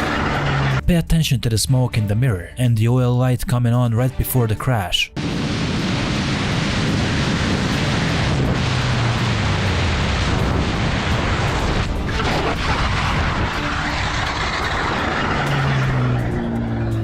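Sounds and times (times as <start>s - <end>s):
wind and road roar: 0.0s - 0.8s, 5.2s - 17.0s.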